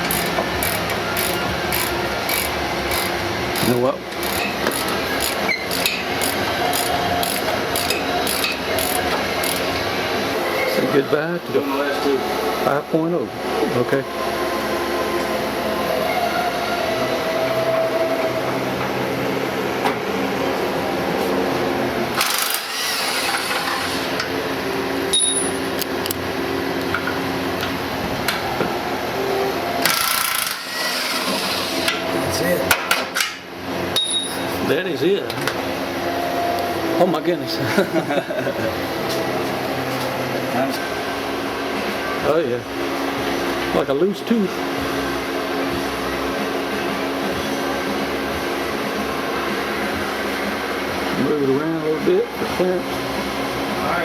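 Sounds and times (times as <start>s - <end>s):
ratchet wrench clicking: 0.0s - 9.6s, 22.2s - 24.3s, 29.8s - 30.7s
steady mechanical hum: 0.0s - 54.0s.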